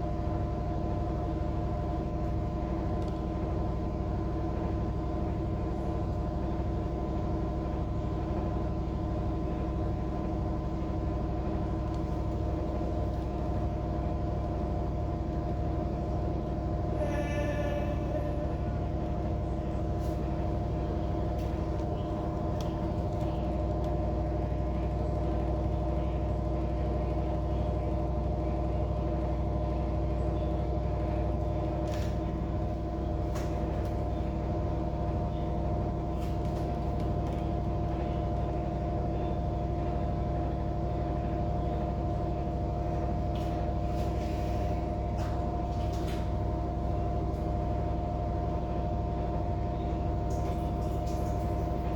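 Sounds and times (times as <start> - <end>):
air conditioner humming and whining: 0.0 - 51.9.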